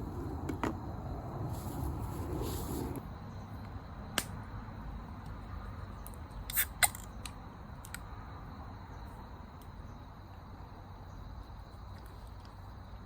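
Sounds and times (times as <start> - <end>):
low steady rumble: 0.0 - 6.1.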